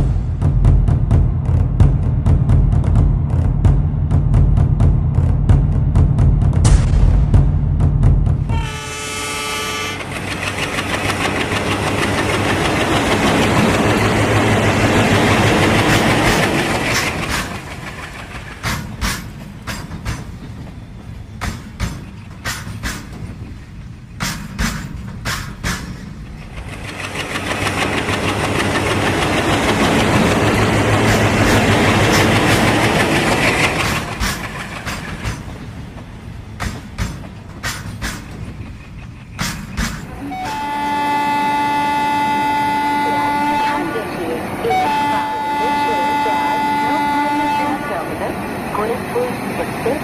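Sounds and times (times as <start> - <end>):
locomotive rumble: 0.0 - 50.0
train wheels clickety-clack: 9.6 - 43.6.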